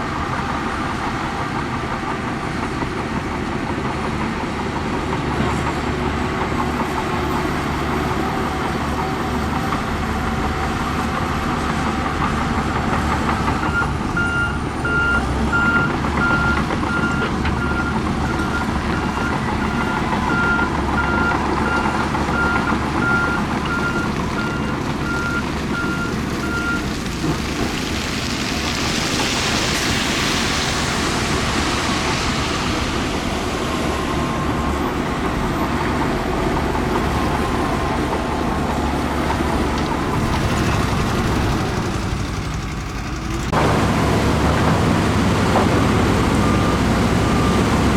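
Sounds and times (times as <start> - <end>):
diesel construction machinery running: 0.0 - 47.9
reversing alarm beeping: 13.6 - 26.8.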